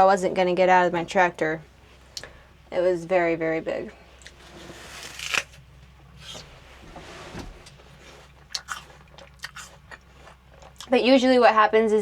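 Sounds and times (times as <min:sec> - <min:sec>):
rustling and scraping: 0:04.2 - 0:09.1.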